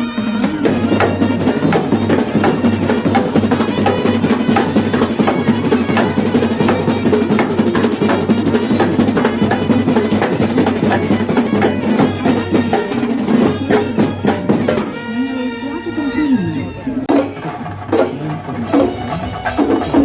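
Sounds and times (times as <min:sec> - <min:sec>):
drum ensemble playing rapid strikes: 0:00.0 - 0:20.0.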